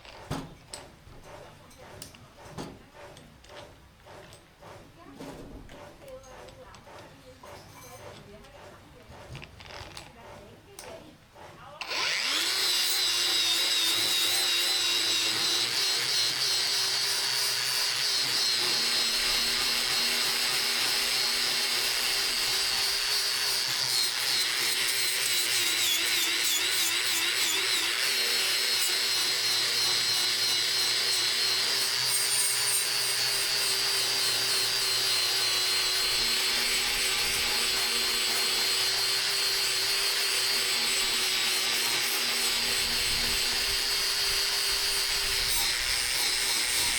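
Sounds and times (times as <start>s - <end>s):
electric power tool running: 11.8s - 46.9s.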